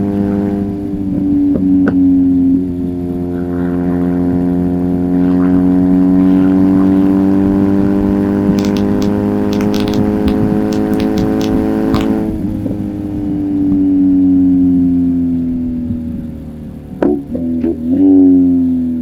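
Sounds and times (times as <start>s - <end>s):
sharp clicks: 8.6s - 12.2s.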